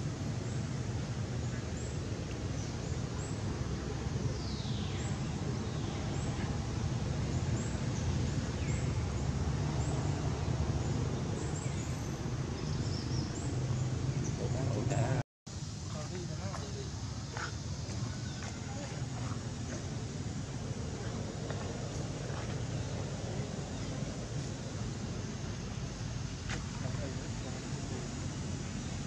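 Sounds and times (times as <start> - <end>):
low rumble and hiss: 0.0 - 29.0
bird chirping: 10.8 - 15.2.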